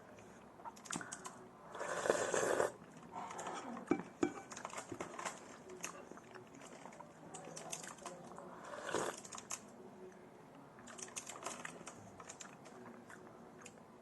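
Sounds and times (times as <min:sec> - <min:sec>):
chewing with mouth clicks: 0:05.8 - 0:07.5, 0:10.8 - 0:13.9.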